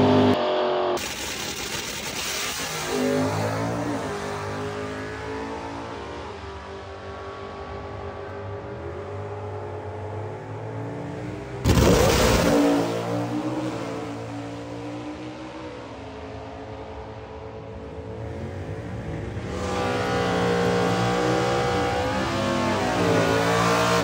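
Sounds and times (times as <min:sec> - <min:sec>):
road noise: 0:00.0 - 0:24.0.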